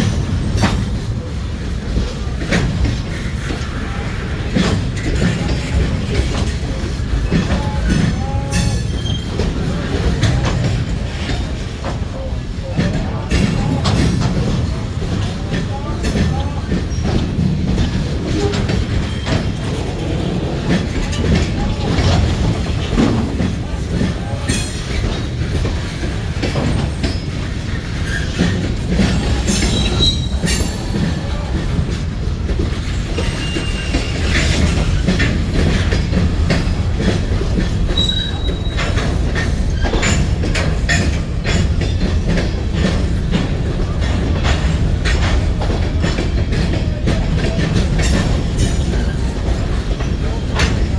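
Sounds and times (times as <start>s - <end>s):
train cars rumbling past: 0.0s - 50.9s
wheels knocking on rails: 0.0s - 50.9s
high wheel squeals: 29.5s - 30.8s, 33.2s - 35.0s, 38.0s - 39.0s.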